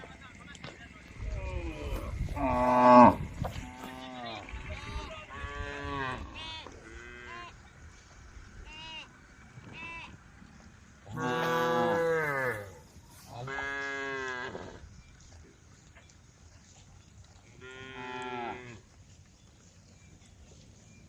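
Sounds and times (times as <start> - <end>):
cows mooing: 1.4 - 4.3, 11.1 - 14.8.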